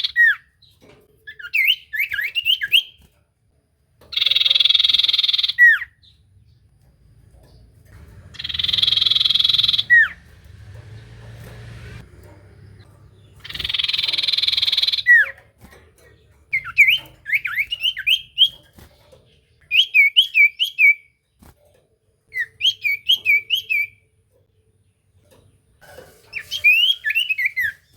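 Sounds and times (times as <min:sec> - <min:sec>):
bird whistled notes: 0:26.4 - 0:27.8.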